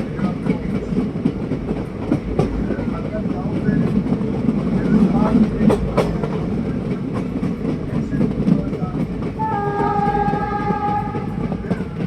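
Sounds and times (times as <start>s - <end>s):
train coach rumbling on track: 0.0s - 12.0s
train horn: 9.4s - 12.0s.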